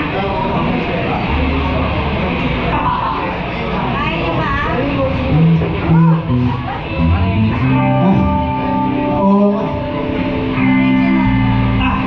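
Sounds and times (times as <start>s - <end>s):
low bass notes: 4.9s - 12.0s
guitar playing held chords: 5.1s - 12.0s.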